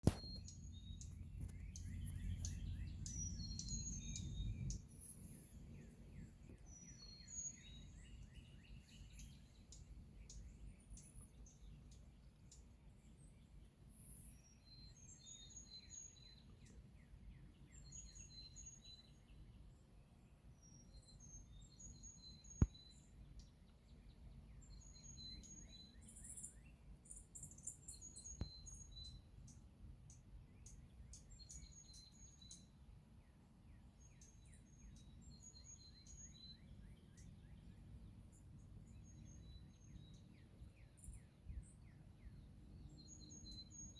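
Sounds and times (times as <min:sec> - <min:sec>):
sharp click: 0:00.0 - 0:00.6
birds singing and chirping: 0:00.0 - 0:19.8, 0:20.6 - 0:43.9
low steady rumble: 0:00.4 - 0:06.8.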